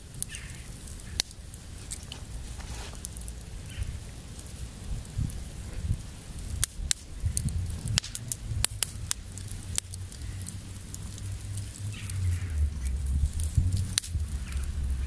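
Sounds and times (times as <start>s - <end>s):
campfire crackling: 0.0s - 15.0s
low rumble: 7.2s - 15.0s.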